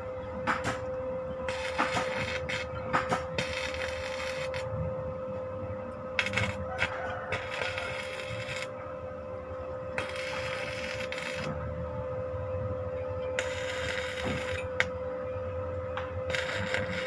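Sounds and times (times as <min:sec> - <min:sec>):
drill motor humming: 0:00.8 - 0:08.8, 0:09.8 - 0:11.7, 0:13.3 - 0:15.0, 0:16.0 - 0:17.0.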